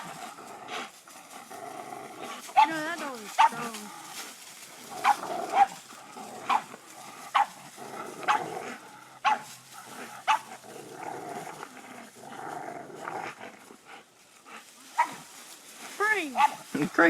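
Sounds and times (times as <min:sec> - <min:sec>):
dog growling: 0:00.0 - 0:15.1
dog barking: 0:02.6 - 0:02.8, 0:03.4 - 0:03.7, 0:05.0 - 0:05.8, 0:07.3 - 0:07.6, 0:08.3 - 0:08.5, 0:09.2 - 0:09.5, 0:10.3 - 0:10.5, 0:15.0 - 0:15.2, 0:16.4 - 0:16.6.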